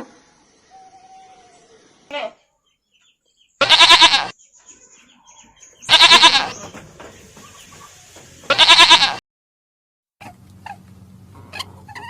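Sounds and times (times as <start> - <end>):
goat bleating: 3.6 - 4.3, 5.9 - 6.8, 8.5 - 9.2.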